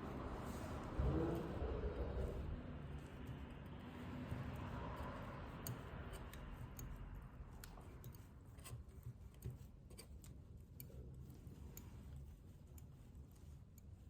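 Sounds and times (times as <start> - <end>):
small tools clicking and tapping: 4.5 - 12.9.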